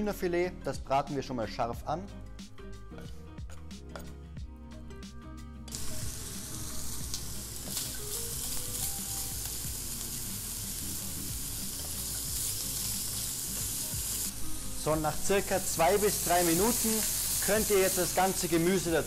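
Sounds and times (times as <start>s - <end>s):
chicken sizzling in hot oil: 5.7s - 19.0s.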